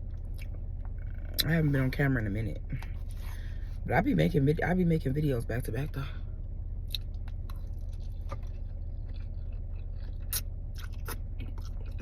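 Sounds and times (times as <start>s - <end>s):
steady low hum: 0.0s - 12.0s
chewing food: 6.9s - 12.0s.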